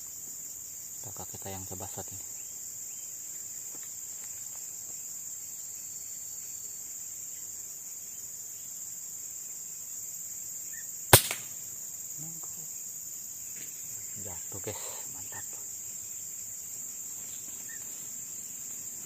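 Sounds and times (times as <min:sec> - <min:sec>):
insects droning: 0:00.0 - 0:19.0
air rifle shot: 0:11.1 - 0:11.6.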